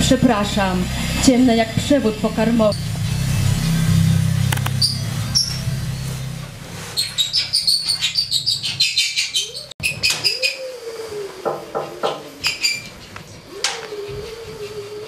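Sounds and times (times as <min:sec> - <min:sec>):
low wavering tone: 0:00.0 - 0:08.2
birds chirping: 0:00.0 - 0:14.4.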